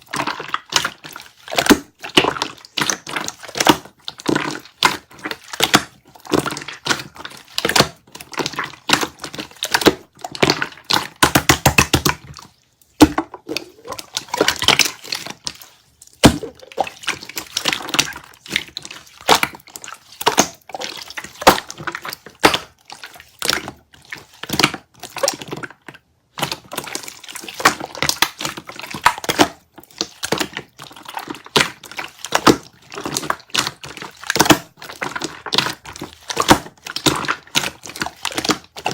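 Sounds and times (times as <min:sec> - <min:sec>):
jelly crunching and squishing: 0:00.0 - 0:38.9.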